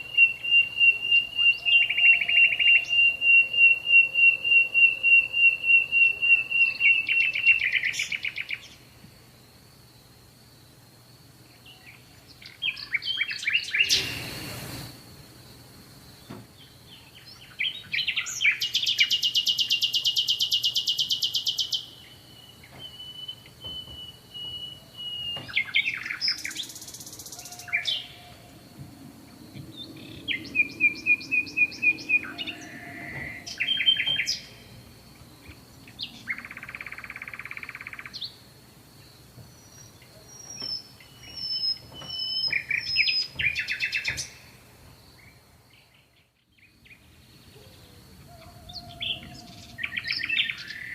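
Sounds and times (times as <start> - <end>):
songbirds singing and chirping: 0.0 - 14.9, 15.5 - 50.9
harsh buzzy bird call: 13.7 - 14.7.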